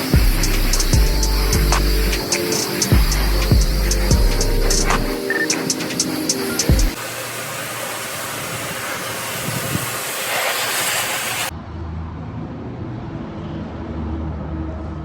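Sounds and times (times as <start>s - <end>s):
pressure washer spraying water: 0.0s - 11.5s.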